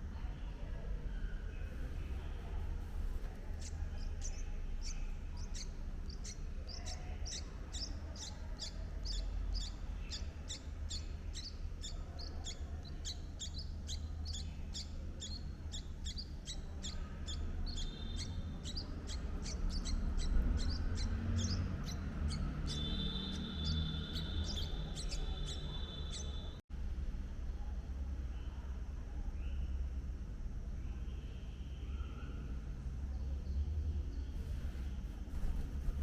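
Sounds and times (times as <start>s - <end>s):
small bird chirping: 0.4s - 26.6s
low rumble: 34.4s - 36.0s.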